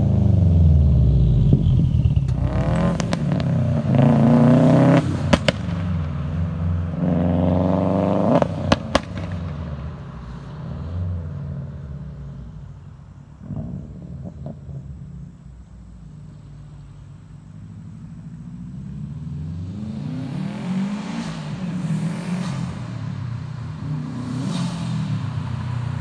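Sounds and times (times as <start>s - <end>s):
car engine idling: 0.0s - 4.5s, 8.6s - 19.7s
car engine revving: 0.0s - 26.0s
exhaust pops and cracks: 5.3s - 5.9s, 8.7s - 9.6s.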